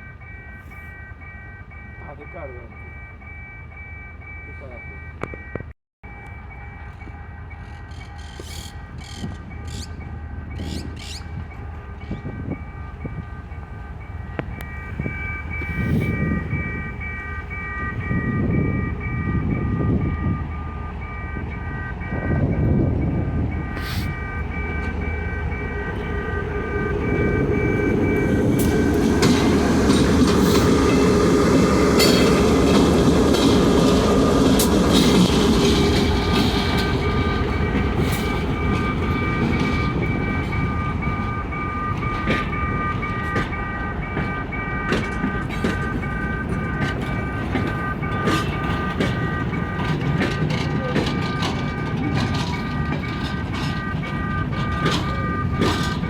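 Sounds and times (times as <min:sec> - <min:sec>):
train rumble: 0:06.1 - 0:56.0
train wheels clattering: 0:23.8 - 0:56.0.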